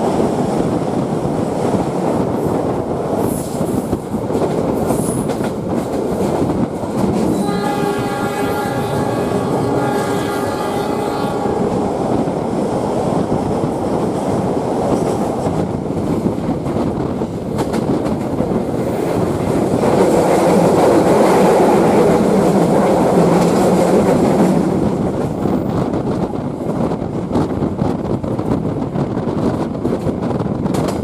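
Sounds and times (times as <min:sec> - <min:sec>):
train wheels clattering on rails: 0:00.0 - 0:31.0
train horn: 0:07.3 - 0:12.0.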